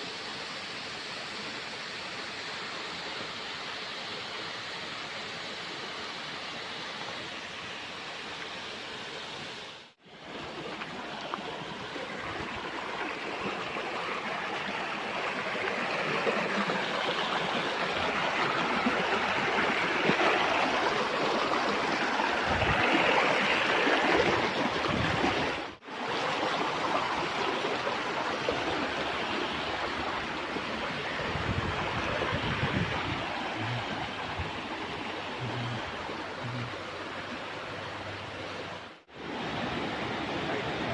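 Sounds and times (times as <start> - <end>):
waterfall rushing: 10.1 - 40.9.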